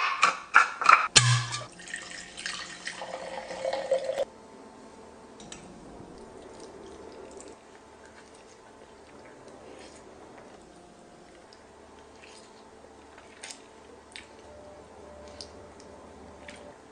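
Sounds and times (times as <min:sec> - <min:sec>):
liquid pouring: 0:01.5 - 0:04.3.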